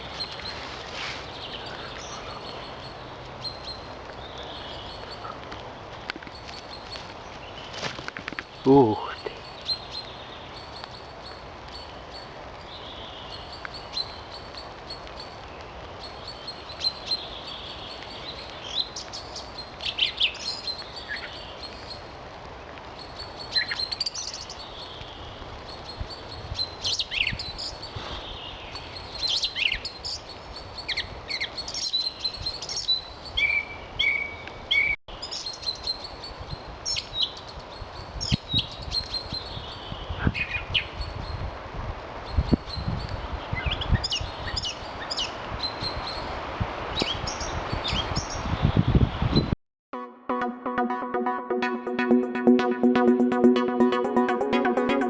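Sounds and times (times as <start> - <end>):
songbirds chirping and trilling: 0.0 - 41.5.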